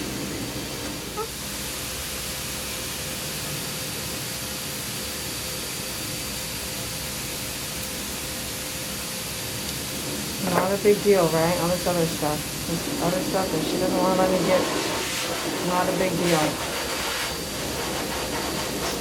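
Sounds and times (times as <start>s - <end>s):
hiss-like machine noise: 0.0s - 19.0s
faint steady hum: 7.3s - 18.9s.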